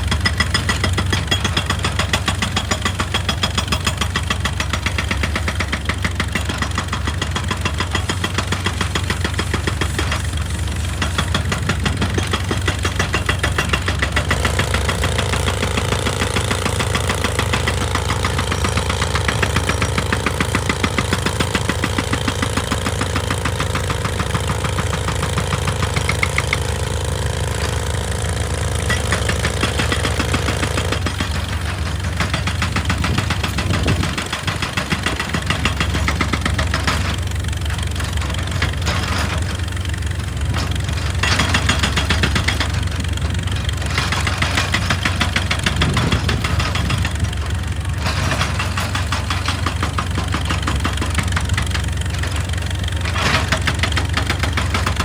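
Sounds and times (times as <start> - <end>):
heavy diesel machinery pulsing: 9.7 - 55.0.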